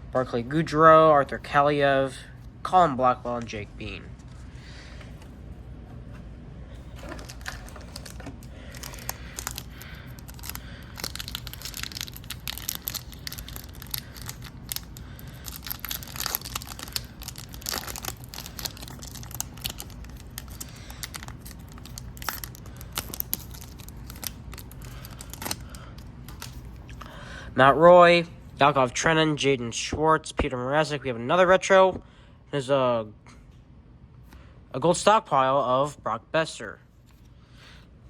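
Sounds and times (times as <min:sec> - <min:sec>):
steady low hum: 0:00.0 - 0:38.0
cards and packaging crinkling: 0:06.8 - 0:27.1.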